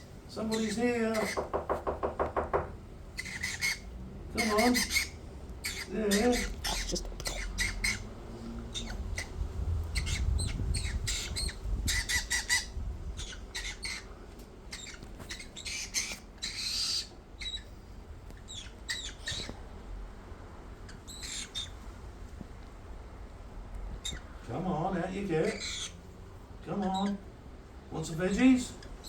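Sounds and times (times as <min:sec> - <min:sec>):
bird squawking and chirping: 0:00.4 - 0:02.6, 0:03.2 - 0:14.1, 0:14.7 - 0:17.7, 0:18.5 - 0:19.6, 0:20.8 - 0:21.8, 0:25.4 - 0:26.0.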